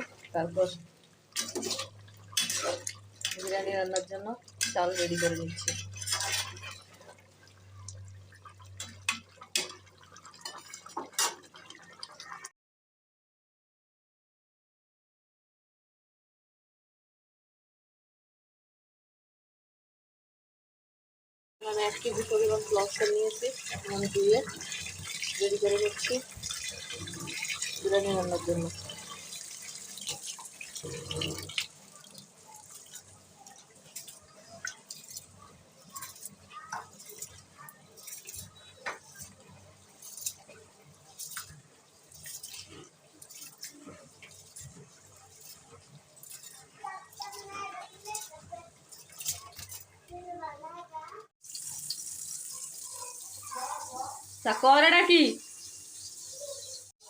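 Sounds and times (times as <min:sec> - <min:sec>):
utensils and dishes clinking: 0:00.0 - 0:11.8, 0:21.7 - 0:49.9
water splashing and dripping: 0:00.0 - 0:12.5, 0:21.6 - 0:50.3, 0:51.4 - 0:56.9.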